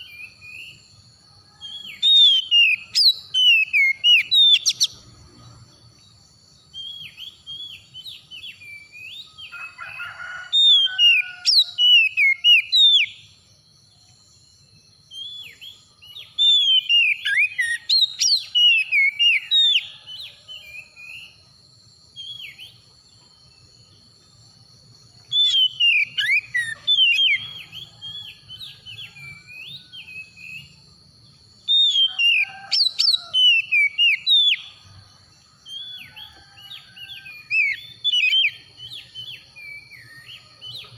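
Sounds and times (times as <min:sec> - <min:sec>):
bird singing whistled phrases: 0:15.1 - 0:19.9, 0:25.3 - 0:30.7, 0:31.7 - 0:34.7.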